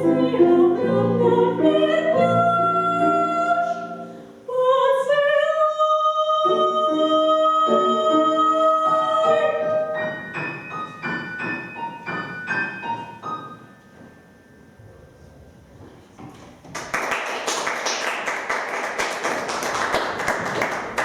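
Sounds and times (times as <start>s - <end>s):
piano accompaniment and chords: 0.0s - 4.5s, 6.4s - 14.8s
classical voice singing: 0.0s - 10.2s.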